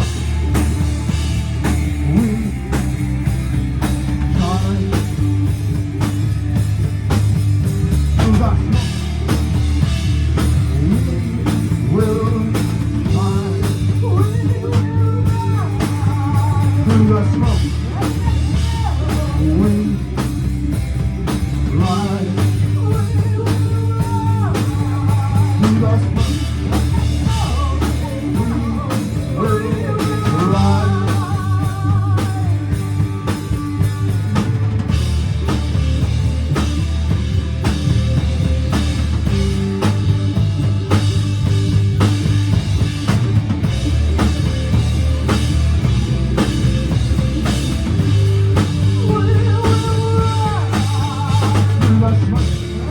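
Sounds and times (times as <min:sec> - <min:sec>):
person singing: 0:00.0 - 0:03.4, 0:04.2 - 0:05.6, 0:10.6 - 0:20.3, 0:21.7 - 0:35.0, 0:47.5 - 0:52.9
rock band playing: 0:00.0 - 0:52.9.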